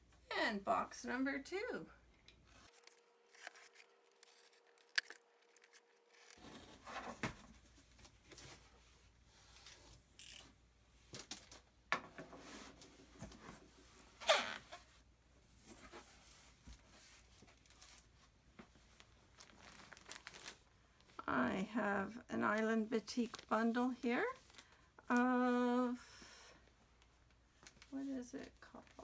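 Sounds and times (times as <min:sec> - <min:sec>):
packing tape ripping: 0:02.6 - 0:06.5
cardboard scraping and rustling: 0:02.6 - 0:08.7.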